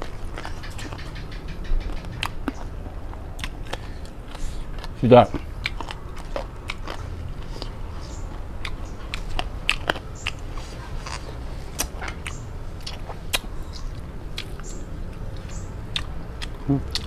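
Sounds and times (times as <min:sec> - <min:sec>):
chewing with mouth clicks: 0:00.0 - 0:17.0.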